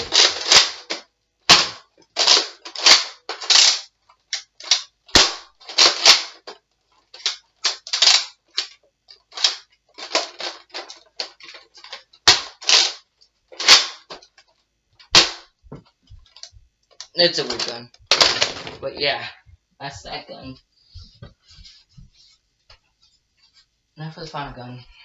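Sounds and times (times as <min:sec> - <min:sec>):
toy blaster clacks and pops: 0:00.0 - 0:13.0, 0:13.6 - 0:14.4, 0:15.0 - 0:15.5.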